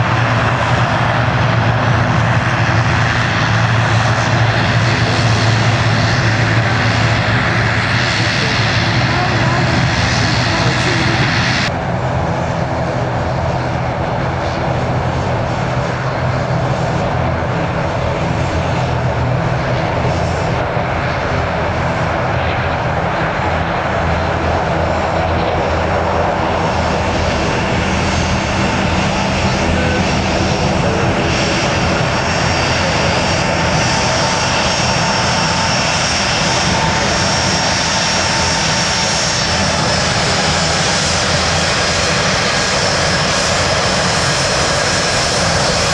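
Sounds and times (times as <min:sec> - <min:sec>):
jet engines running: 0:00.0 - 0:45.9.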